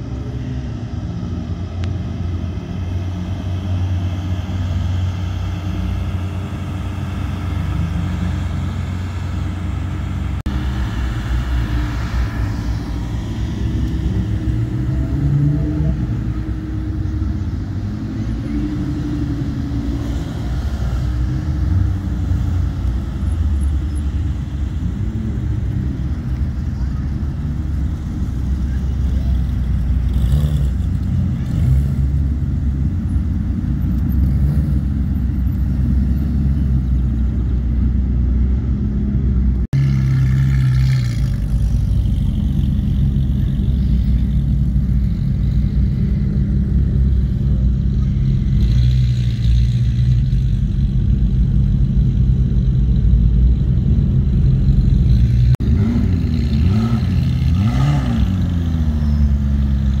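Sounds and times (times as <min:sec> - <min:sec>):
sports car engines rumbling: 0:00.0 - 1:00.0.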